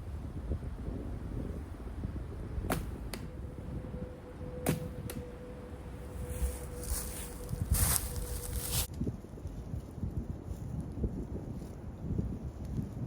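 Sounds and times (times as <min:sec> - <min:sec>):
wind rumbling on microphone: 0:00.0 - 0:13.0
arrow striking target: 0:02.6 - 0:03.3, 0:04.6 - 0:04.9.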